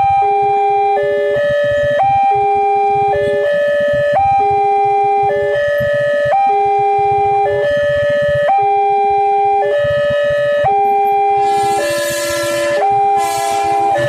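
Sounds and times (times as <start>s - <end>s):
level crossing two-note alarm: 11.4s - 14.0s.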